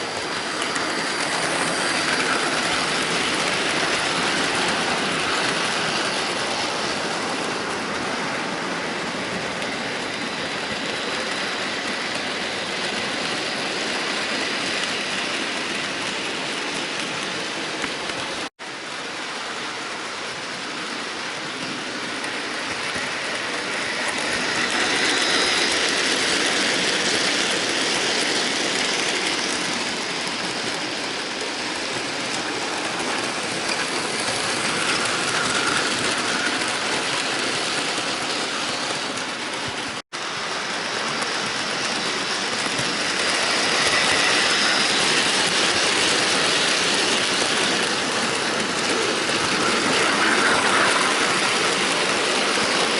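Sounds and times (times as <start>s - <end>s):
model train motor whirring: 0.0s - 8.2s, 21.6s - 52.9s
wheels clattering over rails: 21.5s - 52.9s.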